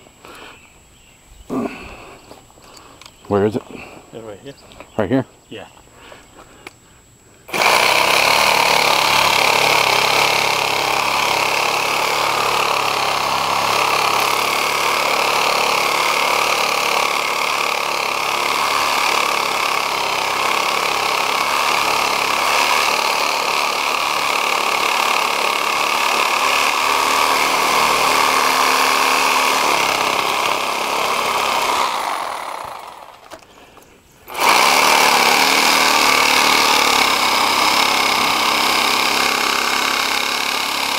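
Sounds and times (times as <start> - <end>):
power tool motor running: 7.5 - 33.4, 34.3 - 40.9.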